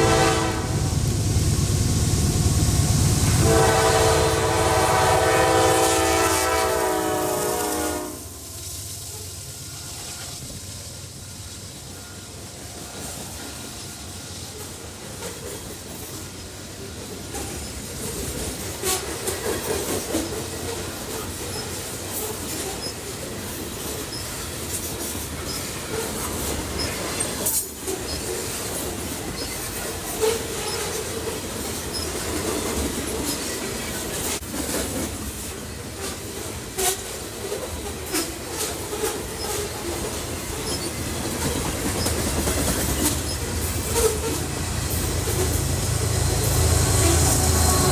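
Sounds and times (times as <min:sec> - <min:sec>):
train rumbling past: 0:00.0 - 0:47.9
wheels clanking over rail joints: 0:12.0 - 0:47.9.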